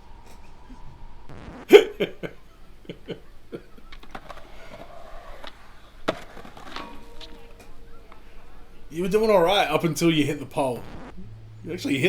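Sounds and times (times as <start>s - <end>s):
skateboard clattering: 4.0s - 8.4s.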